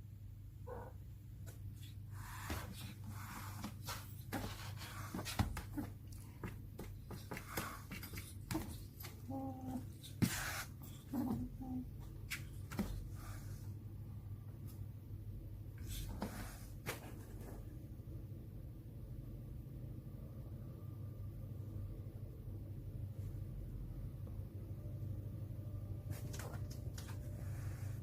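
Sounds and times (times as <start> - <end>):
kitten mewing: 0.6 - 1.0
small animal rustling and scratching: 1.4 - 13.7, 26.0 - 28.0.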